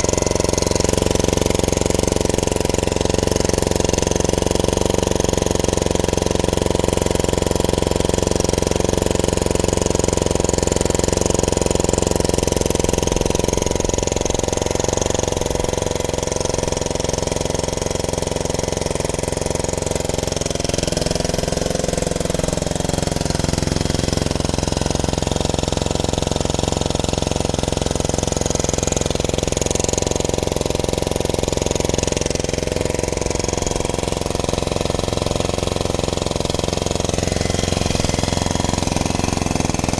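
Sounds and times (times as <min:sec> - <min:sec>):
generator engine running: 0:00.0 - 0:39.9.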